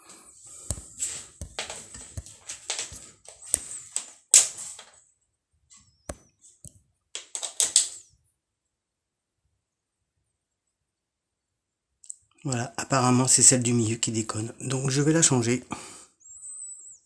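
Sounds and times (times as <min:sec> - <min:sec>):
hands clicking and tapping: 0:00.6 - 0:04.9, 0:07.2 - 0:08.0.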